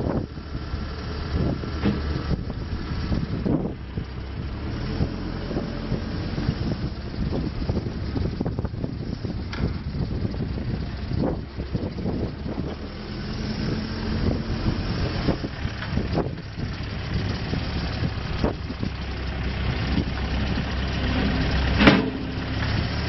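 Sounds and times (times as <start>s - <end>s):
diesel engine running: 0.0s - 23.0s
sharp knocks: 21.7s - 22.8s.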